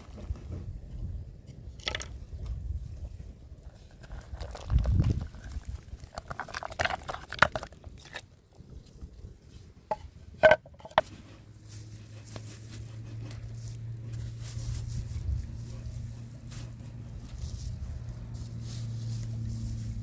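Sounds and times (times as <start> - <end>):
steady low hum: 9.7 - 20.0.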